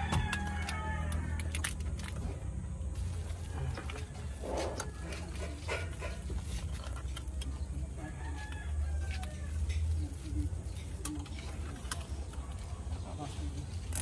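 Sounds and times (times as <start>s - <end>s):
rooster crowing: 0.0s - 1.6s, 8.0s - 9.7s.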